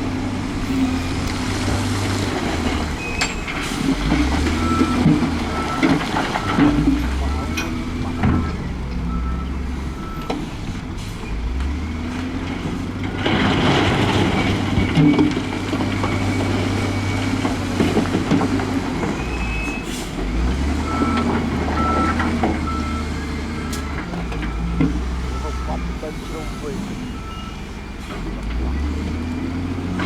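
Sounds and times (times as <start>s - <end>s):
heavy diesel machines running: 0.0s - 30.0s
reversing alarm beeping: 4.6s - 10.5s, 20.8s - 27.8s.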